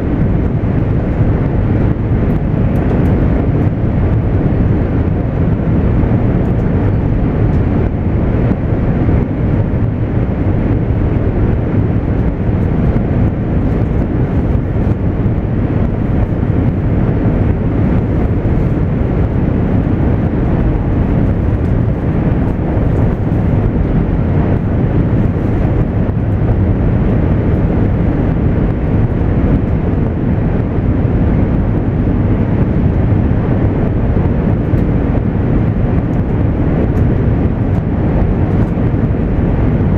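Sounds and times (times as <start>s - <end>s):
train cabin rumble: 0.0s - 28.2s.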